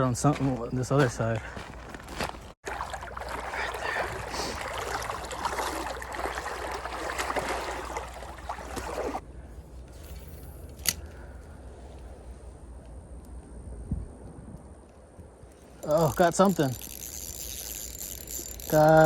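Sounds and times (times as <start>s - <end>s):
water splashing from wading: 2.6s - 9.2s.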